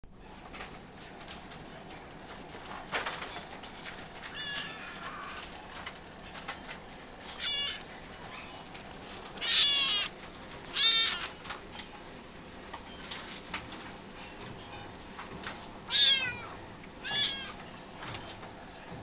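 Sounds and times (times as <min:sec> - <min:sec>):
kitten meowing: 0:04.4 - 0:05.4, 0:07.3 - 0:07.9, 0:09.4 - 0:10.1, 0:10.7 - 0:11.3, 0:15.9 - 0:17.6.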